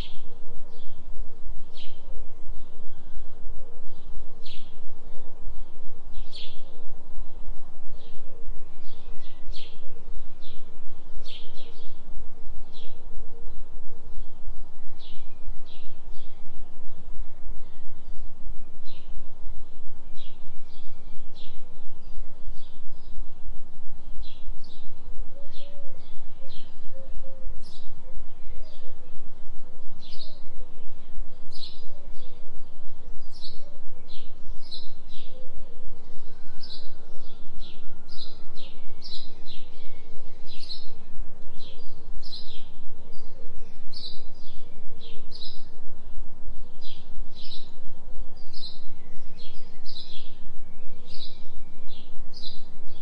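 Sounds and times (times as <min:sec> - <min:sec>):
low pulsing tone: 0:00.0 - 0:53.0.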